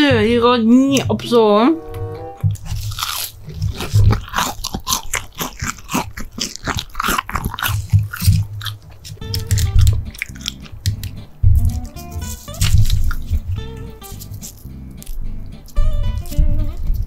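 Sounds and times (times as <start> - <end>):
crunchy chewing: 2.5 - 17.0.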